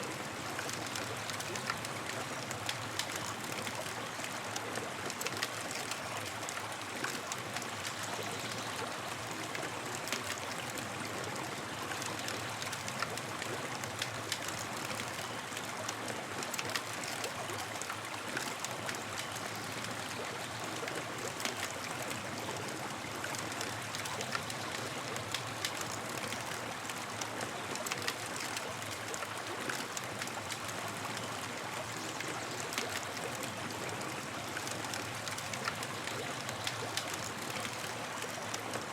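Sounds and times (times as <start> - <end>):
campfire crackling: 32.6 - 38.8.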